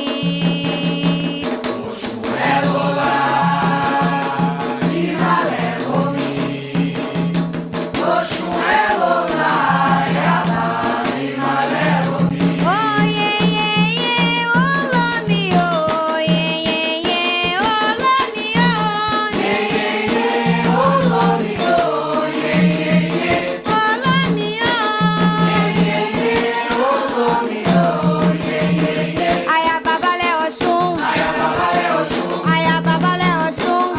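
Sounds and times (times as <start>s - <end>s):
voices singing a chant: 0.0s - 15.5s, 18.6s - 33.9s
hand drums: 0.0s - 33.9s
struck percussion: 0.0s - 33.9s.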